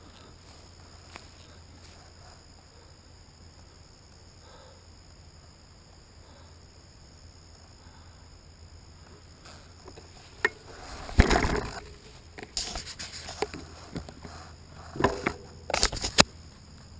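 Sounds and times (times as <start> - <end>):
crickets chirping: 0.0 - 16.9
scraping and rustling: 9.4 - 16.3.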